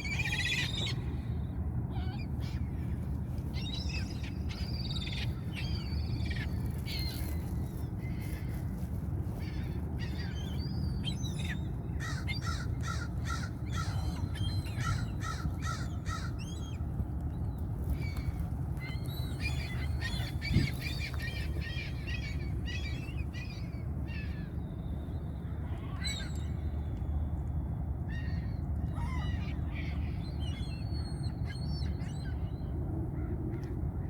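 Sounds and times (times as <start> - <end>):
seagulls calling: 9.3 - 16.9, 17.9 - 26.6, 28.1 - 33.7.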